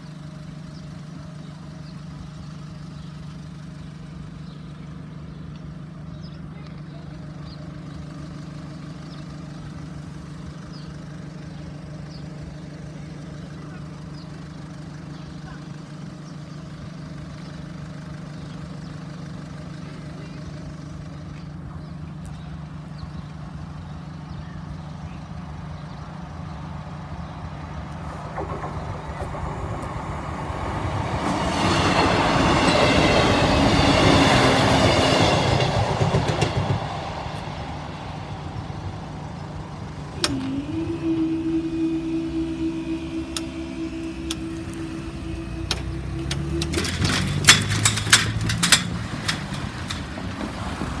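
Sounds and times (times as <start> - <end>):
train passing: 25.5 - 51.0
steady low tone: 36.0 - 50.2
sharp clicks: 42.1 - 50.2.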